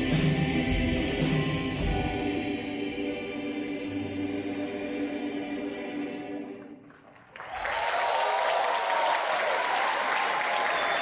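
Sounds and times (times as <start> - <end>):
choir holding a chord: 0.0 - 6.8
audience applause: 6.9 - 11.0.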